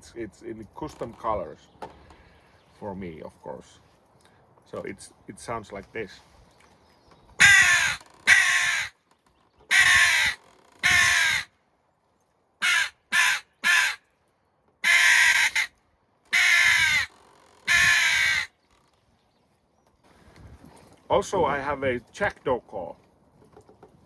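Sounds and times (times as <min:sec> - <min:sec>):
crow call caws: 0:07.4 - 0:09.0, 0:09.7 - 0:11.6, 0:12.6 - 0:14.1, 0:14.8 - 0:18.6.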